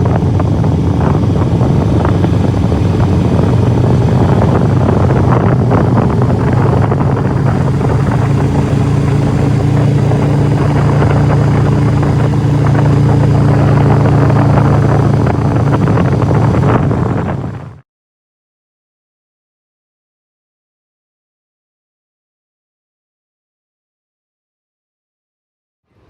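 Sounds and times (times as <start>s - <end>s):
higher steady engine tone: 0.0s - 17.8s
motorcycle engine running: 0.0s - 17.8s.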